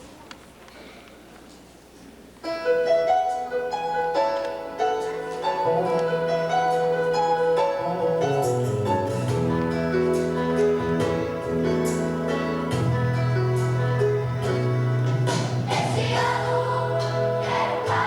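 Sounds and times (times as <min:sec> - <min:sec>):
piano playing: 0:02.4 - 0:18.0.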